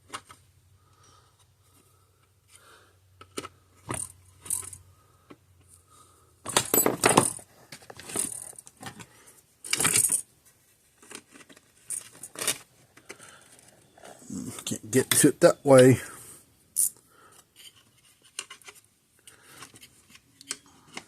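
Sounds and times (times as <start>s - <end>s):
metal hardware clinking: 6.5s - 8.7s, 9.6s - 10.2s.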